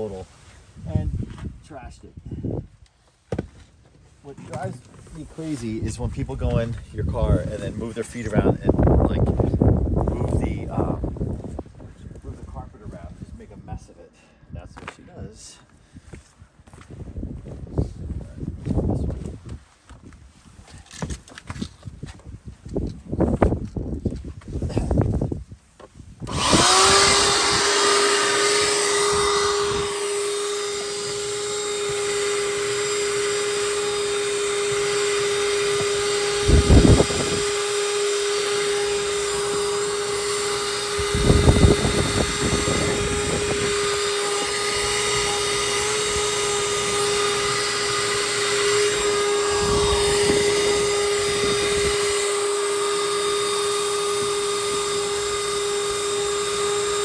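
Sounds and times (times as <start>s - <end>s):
shop vac motor running: 26.2s - 57.0s.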